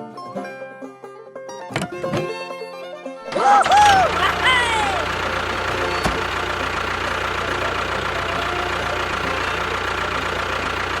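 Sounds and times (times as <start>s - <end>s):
small motor running: 3.4s - 11.0s.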